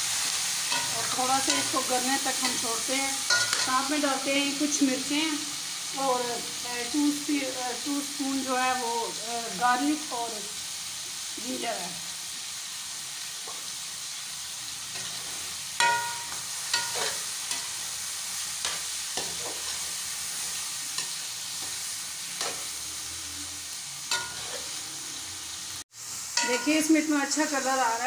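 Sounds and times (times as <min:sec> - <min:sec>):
chicken sizzling in a pot: 0:00.0 - 0:28.0
metal spoon clinking against pot: 0:00.7 - 0:01.8, 0:03.3 - 0:03.8, 0:15.8 - 0:17.7, 0:24.1 - 0:24.6, 0:26.4 - 0:26.8.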